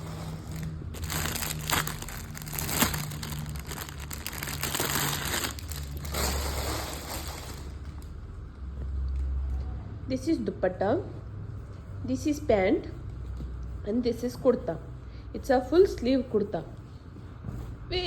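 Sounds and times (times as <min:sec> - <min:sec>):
low steady hum: 0:00.0 - 0:18.0
plastic packaging crinkling: 0:00.4 - 0:08.0.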